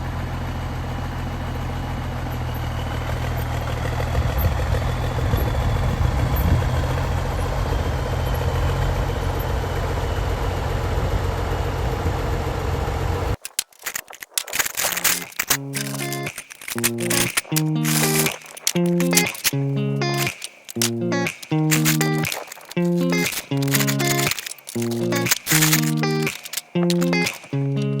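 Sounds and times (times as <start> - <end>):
tractor engine idling: 0.0 - 13.4.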